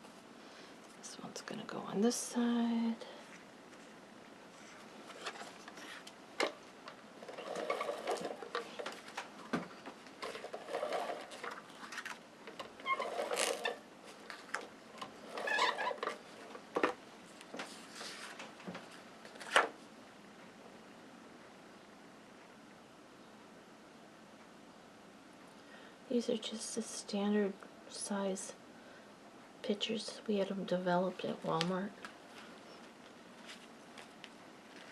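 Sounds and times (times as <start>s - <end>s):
paper rustling and scraping: 3.3s - 6.2s, 7.2s - 9.3s, 10.2s - 12.2s, 12.8s - 19.7s.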